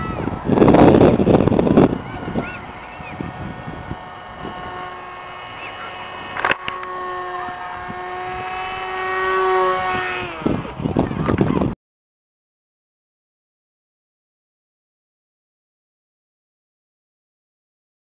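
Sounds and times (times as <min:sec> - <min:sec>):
model airplane motor hum: 0:00.0 - 0:11.8
rumbling noise: 0:00.0 - 0:11.8.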